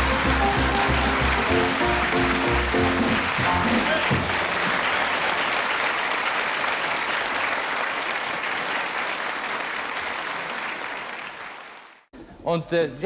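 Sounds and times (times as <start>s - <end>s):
song ending: 0.0s - 5.5s
audience applauding: 0.0s - 12.1s.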